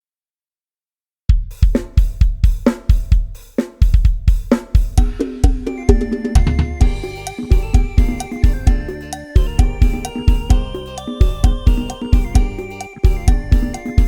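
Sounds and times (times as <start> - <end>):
drum kit beat: 1.3 - 14.0
bass backing: 4.8 - 14.0
stepping melodic line: 5.0 - 14.0.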